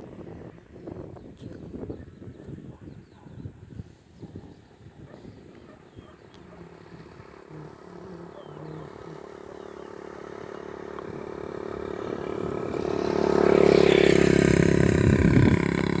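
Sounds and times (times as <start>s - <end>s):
vehicle engine approaching: 6.5s - 16.0s.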